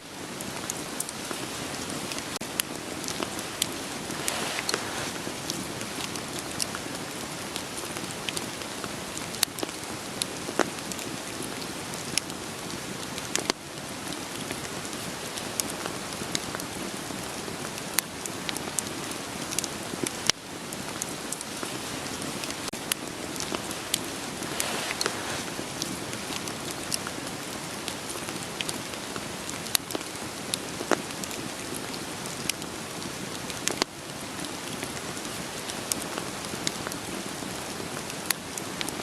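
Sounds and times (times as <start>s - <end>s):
burning firewood crackling: 0.0s - 39.0s
rain hiss: 0.0s - 39.0s.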